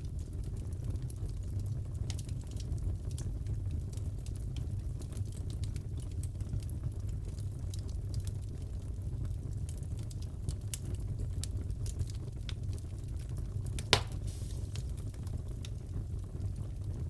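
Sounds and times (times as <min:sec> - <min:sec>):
burning logs rumbling: 0:00.0 - 0:17.0
fire crackles: 0:00.0 - 0:17.0
loud pop of fire: 0:13.8 - 0:15.5.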